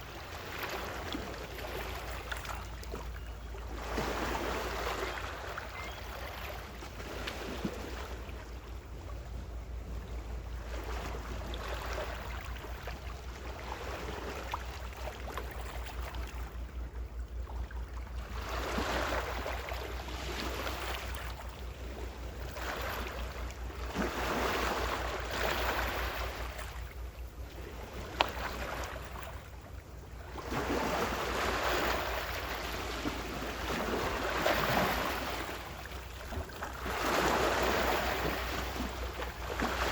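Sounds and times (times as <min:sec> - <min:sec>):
ocean waves washing ashore: 0:00.0 - 0:39.9
steady low rumble: 0:07.8 - 0:34.4.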